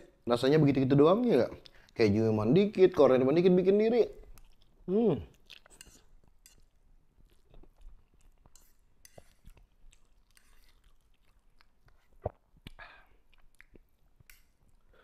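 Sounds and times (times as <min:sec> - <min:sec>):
quiet chewing of noodles: 0:01.5 - 0:02.0, 0:04.2 - 0:15.0
fork scraping a plate: 0:05.7 - 0:06.7, 0:08.4 - 0:09.6, 0:10.3 - 0:10.9.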